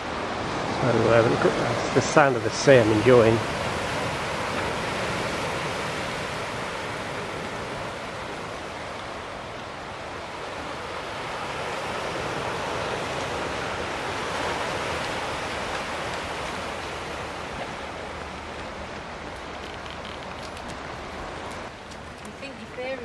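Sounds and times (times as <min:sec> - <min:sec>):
sea surf washing ashore: 0:00.0 - 0:23.0.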